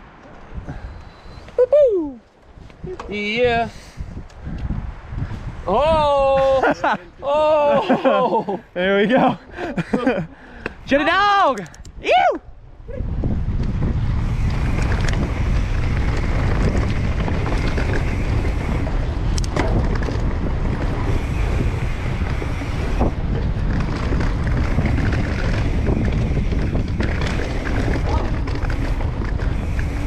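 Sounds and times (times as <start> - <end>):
wind buffeting microphone: 0.0 - 30.0
bike tyres rumbling on dirt trail: 13.1 - 30.0.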